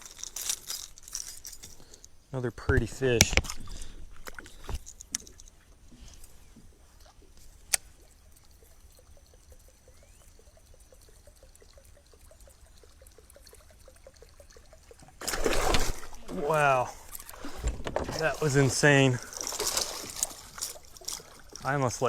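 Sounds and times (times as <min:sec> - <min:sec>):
faint trickling water: 0:01.3 - 0:22.0.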